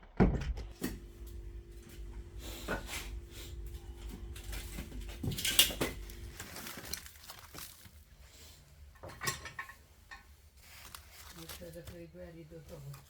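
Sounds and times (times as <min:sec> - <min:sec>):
steady low hum: 0:00.4 - 0:13.0
dishes clinking and knocking: 0:02.6 - 0:06.3, 0:09.0 - 0:10.3.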